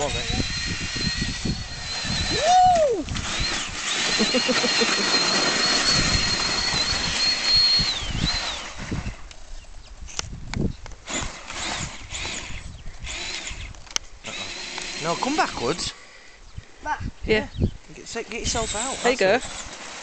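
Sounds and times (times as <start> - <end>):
electric motor whining: 0.0 - 9.5, 11.0 - 15.9, 18.3 - 20.0
rustling: 19.1 - 20.0.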